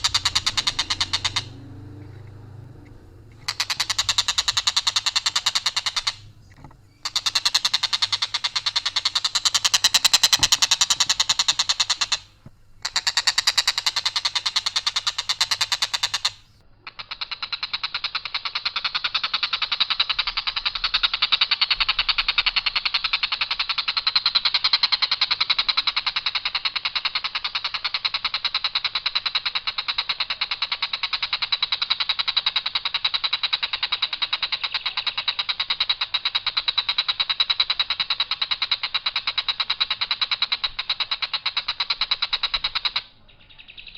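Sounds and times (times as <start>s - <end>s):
harsh rattling bird call: 0.0s - 43.9s.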